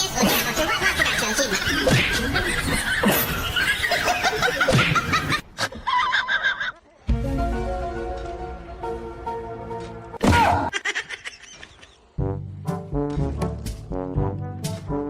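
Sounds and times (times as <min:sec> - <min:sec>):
people laughing: 0:00.0 - 0:07.1, 0:10.4 - 0:12.2.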